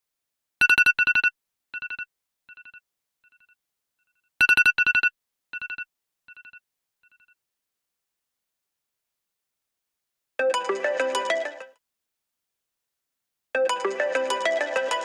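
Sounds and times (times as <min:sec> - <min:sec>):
phone ringtone beeps: 0:00.6 - 0:02.8, 0:04.4 - 0:07.4, 0:13.6 - 0:15.0.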